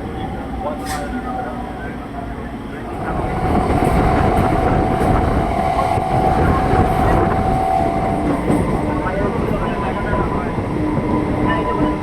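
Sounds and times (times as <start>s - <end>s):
electric train rumbling: 0.0s - 12.0s
steady high tone: 3.0s - 10.2s.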